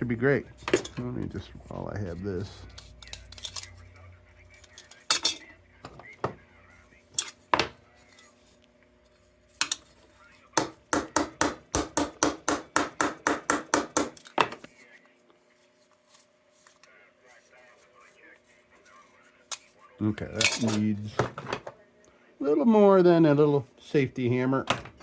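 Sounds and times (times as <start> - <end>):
small hammer tapping sheet metal: 10.6 - 14.3.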